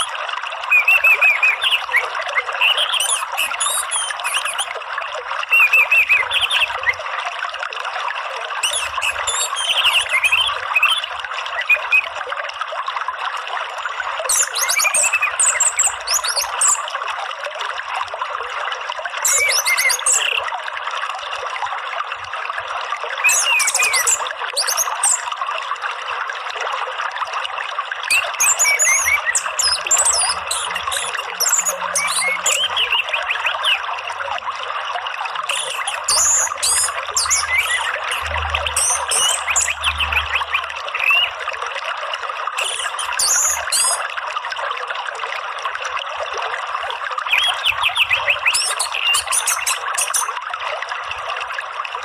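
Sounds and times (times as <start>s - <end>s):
bird chirps and trills: 0.0s - 4.8s, 5.4s - 7.0s, 8.6s - 12.2s, 13.9s - 16.9s, 19.2s - 20.4s, 23.2s - 25.3s, 28.1s - 33.9s, 35.5s - 41.4s, 42.6s - 44.0s, 47.2s - 50.4s
flowing water: 0.0s - 52.0s.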